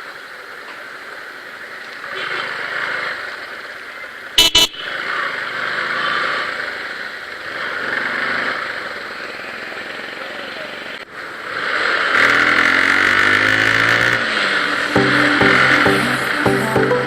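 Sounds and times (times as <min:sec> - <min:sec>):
motorcycle road and wind noise: 0:00.0 - 0:16.4
loud horn toots: 0:04.4 - 0:05.0.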